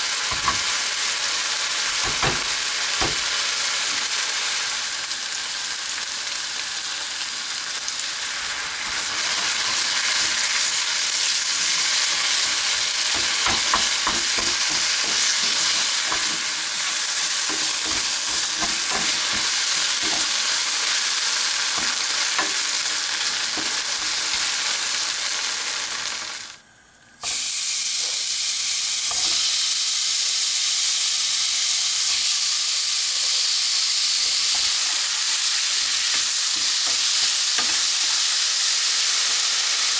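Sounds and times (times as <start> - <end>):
food sizzling in a pan: 0.0 - 39.9
utensil scraping a pan: 13.1 - 20.4.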